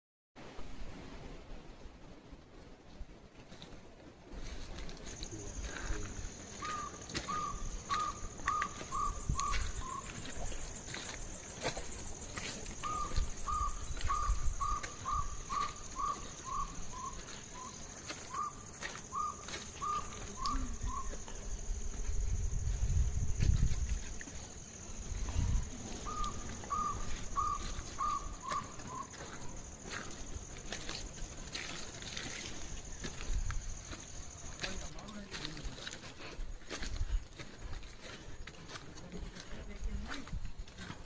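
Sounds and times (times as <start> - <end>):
bird calling short note: 6.6 - 10.1, 26.0 - 29.1.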